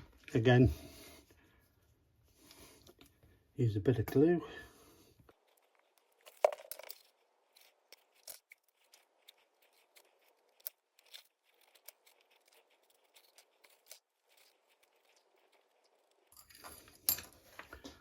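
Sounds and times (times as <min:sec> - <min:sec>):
glue brushing: 0:05.3 - 0:16.4.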